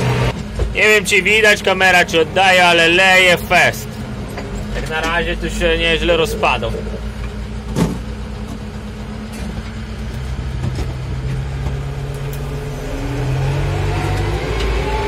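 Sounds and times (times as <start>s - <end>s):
tractor diesel engine: 0.0s - 15.0s.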